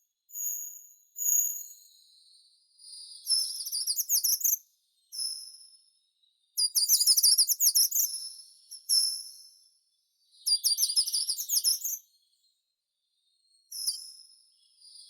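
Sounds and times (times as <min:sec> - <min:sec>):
songbird singing: 0:10.2 - 0:12.5.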